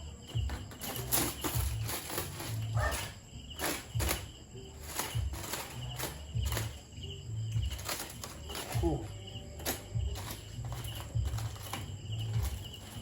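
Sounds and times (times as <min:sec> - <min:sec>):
crickets chirping: 0:00.0 - 0:13.0
knocks and thumps at grill: 0:00.0 - 0:13.0.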